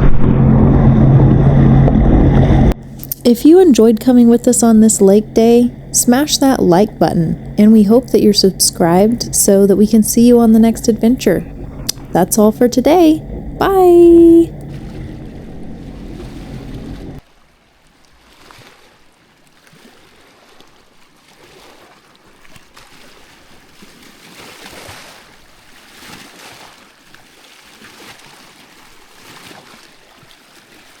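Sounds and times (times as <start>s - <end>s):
steady multi-tone hum: 0.0s - 17.2s
water lapping softly: 2.7s - 31.0s.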